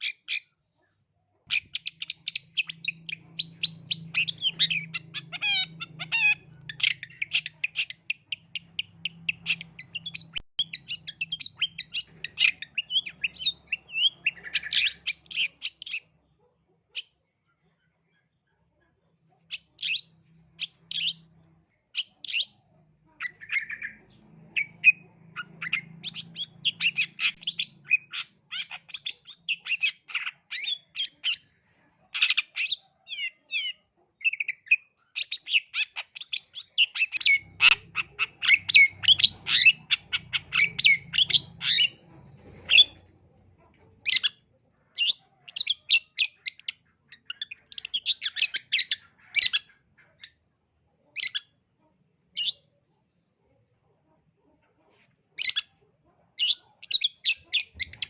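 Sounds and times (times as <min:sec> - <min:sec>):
shrike chattering song: 0:01.5 - 0:16.1, 0:32.2 - 0:43.0.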